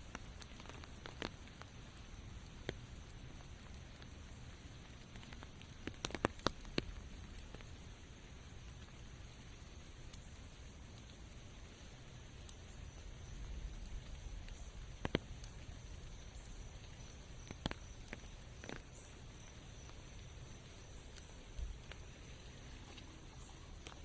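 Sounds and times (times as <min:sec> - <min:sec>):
raindrops ticking: 0:00.0 - 0:24.0.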